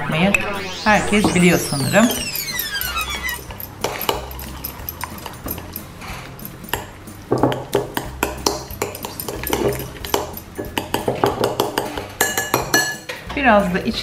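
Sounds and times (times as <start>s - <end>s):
utensil scraping in a bowl: 3.4s - 7.2s.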